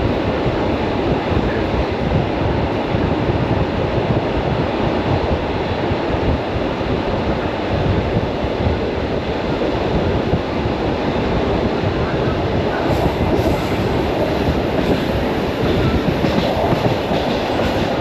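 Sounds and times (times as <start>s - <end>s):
electric train running: 12.6s - 18.0s.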